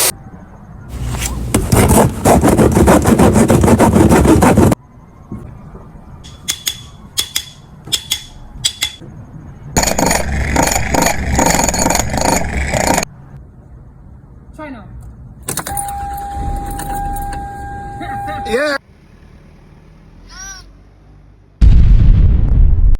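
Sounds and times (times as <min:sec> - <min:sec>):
loud dense mechanical noise: 0:08.6 - 0:13.4
sharp metallic clinks: 0:15.5 - 0:18.6.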